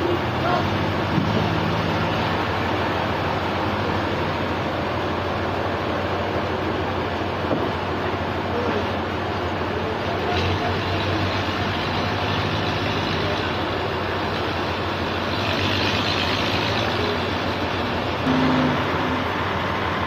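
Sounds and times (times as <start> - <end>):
engine and machinery hum: 0.0 - 20.0
brief louder tone: 18.2 - 19.6.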